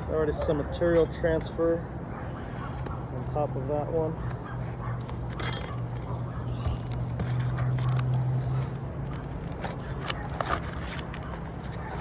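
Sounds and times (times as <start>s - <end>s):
shingles scraping and clicking: 5.0s - 12.0s.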